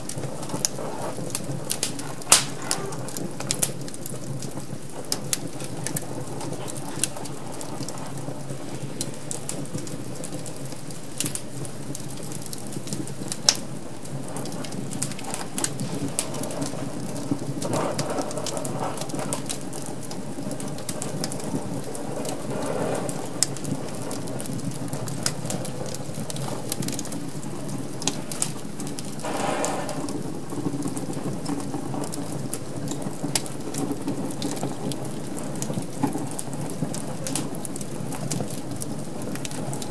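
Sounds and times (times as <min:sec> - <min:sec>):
low rush of flames: 0:00.0 - 0:39.9
wood fire crackling: 0:00.0 - 0:39.9.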